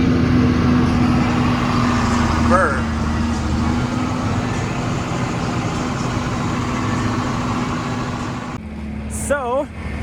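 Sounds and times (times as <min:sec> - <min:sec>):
diesel tractor engine running: 0:00.0 - 0:08.6.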